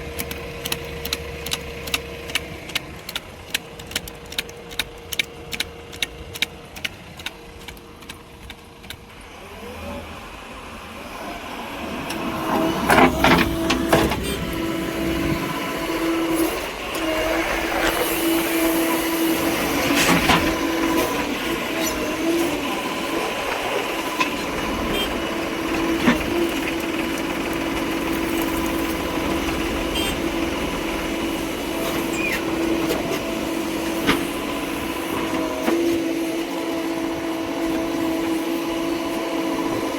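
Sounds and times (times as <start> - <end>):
heavy vehicle engine running: 0.0 - 39.9
quick regular ticks: 0.2 - 9.0.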